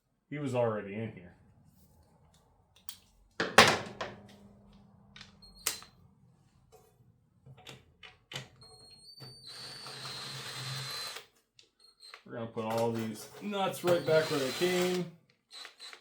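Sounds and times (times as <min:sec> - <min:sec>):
loud metallic clank: 0:03.4 - 0:04.4
small power tool whining: 0:08.9 - 0:12.2, 0:13.7 - 0:16.0.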